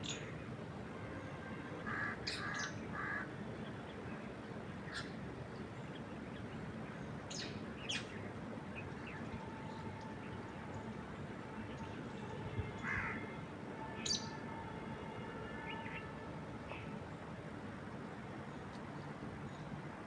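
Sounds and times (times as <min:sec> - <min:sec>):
birds calling: 0:01.9 - 0:03.9.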